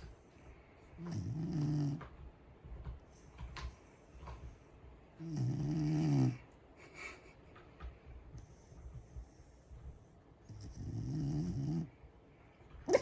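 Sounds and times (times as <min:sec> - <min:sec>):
dog snoring: 0:01.0 - 0:02.1, 0:05.2 - 0:06.4, 0:10.4 - 0:12.0.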